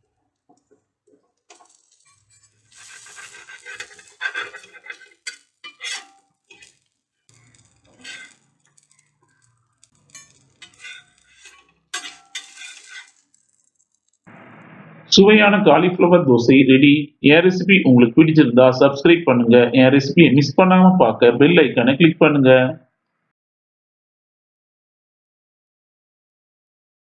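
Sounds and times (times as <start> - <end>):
metal utensils clattering on pans: 1.5 - 13.8.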